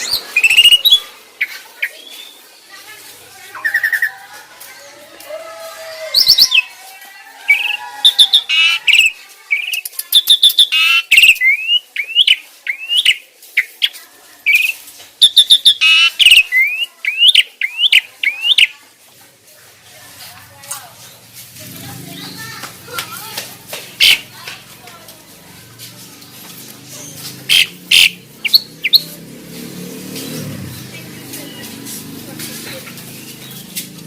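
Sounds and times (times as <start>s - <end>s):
starlings chirping and calling: 0.0s - 2.7s, 6.2s - 6.7s, 7.5s - 13.9s, 14.5s - 18.7s, 23.9s - 24.4s, 26.6s - 34.0s.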